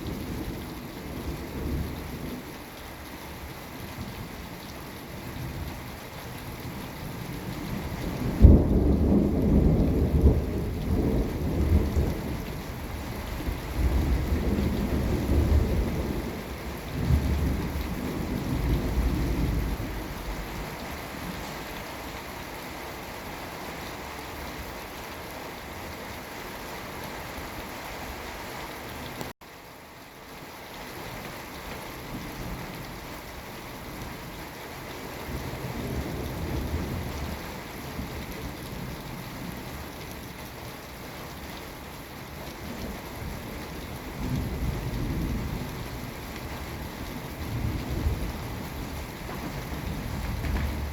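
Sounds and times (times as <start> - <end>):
steady rain hissing: 0.0 - 50.9
thunder rumbling: 8.0 - 21.6, 44.1 - 50.9.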